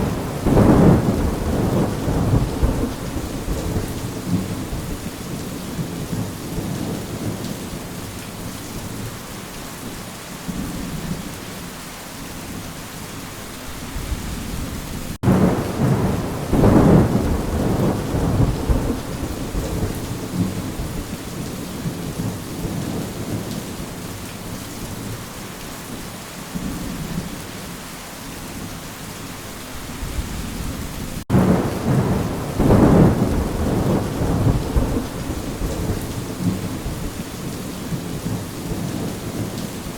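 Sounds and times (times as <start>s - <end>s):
thunder rumbling: 0.0s - 7.5s, 14.0s - 23.6s, 30.0s - 39.9s
steady rain: 0.0s - 39.9s.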